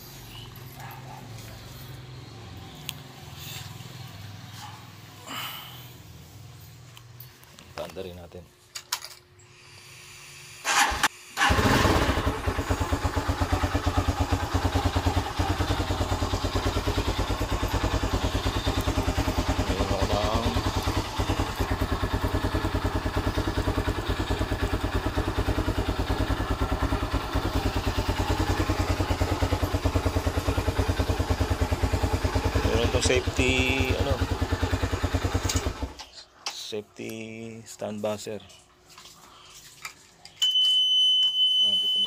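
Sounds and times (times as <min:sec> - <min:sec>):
motorcycle engine cranking: 0:10.7 - 0:36.2
motorcycle engine idling: 0:11.4 - 0:36.0.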